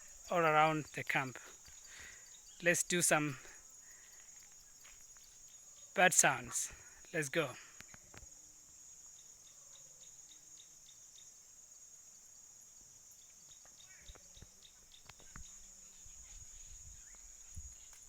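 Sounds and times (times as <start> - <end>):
high-pitched insect drone: 0.0 - 12.4.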